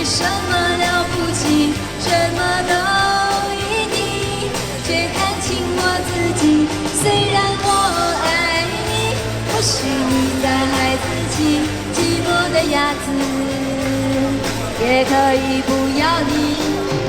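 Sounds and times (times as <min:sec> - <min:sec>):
backing track with beat and bass: 0:00.0 - 0:17.0
person singing pop song: 0:00.0 - 0:17.0.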